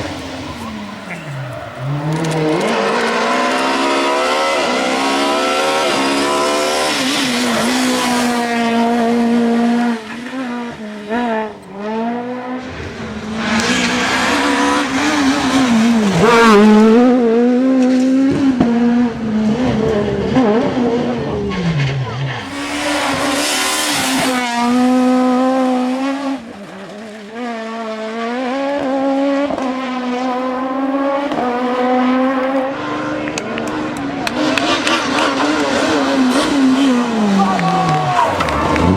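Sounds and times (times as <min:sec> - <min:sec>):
rally car engine at high revs: 0:00.0 - 0:38.9
loud hissing: 0:22.4 - 0:24.4
tyre squeal: 0:22.4 - 0:24.7.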